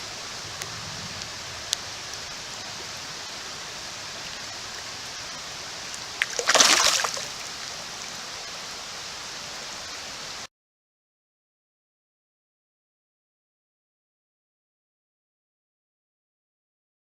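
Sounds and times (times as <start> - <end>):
creek water rushing: 0.0 - 10.5
fish splashing into water: 6.1 - 7.6.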